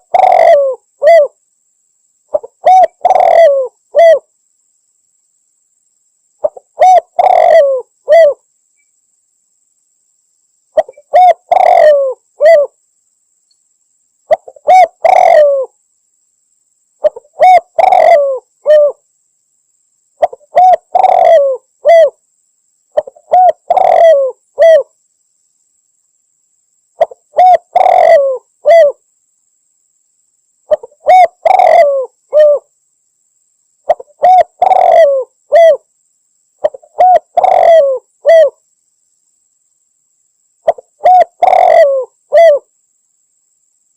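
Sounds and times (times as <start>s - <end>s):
dove cooing: 0.0s - 1.4s, 2.3s - 4.3s, 6.4s - 8.4s, 10.8s - 12.8s, 14.3s - 15.8s, 17.0s - 19.0s, 20.2s - 22.2s, 23.0s - 24.9s, 27.0s - 29.0s, 30.7s - 32.7s, 33.9s - 35.9s, 36.6s - 38.6s, 40.6s - 42.7s.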